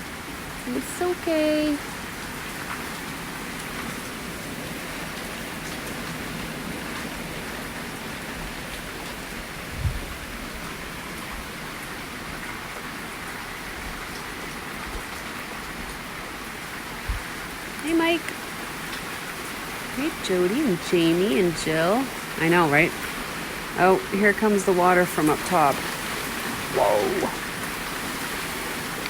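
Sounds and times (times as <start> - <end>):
heavy rain pouring: 0.0 - 29.0.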